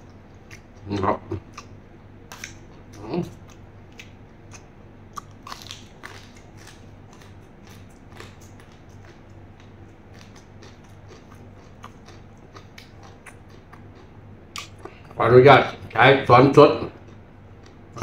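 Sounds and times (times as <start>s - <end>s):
steady low hum: 0.0s - 18.0s
wet chewing mouth clicks: 2.3s - 15.0s.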